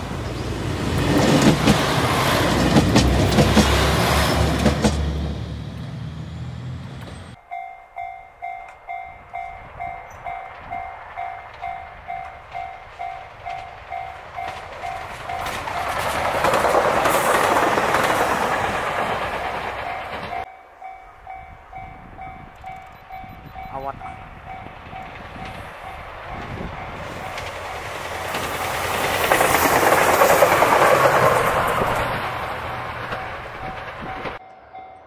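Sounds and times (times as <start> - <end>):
approaching train noise: 0.0 - 35.0
diesel train engines running: 0.0 - 35.0
wheels clicking over rail joints: 0.3 - 5.2, 8.0 - 35.0
level-crossing bell ringing: 7.4 - 16.5, 19.8 - 27.9, 33.2 - 35.0.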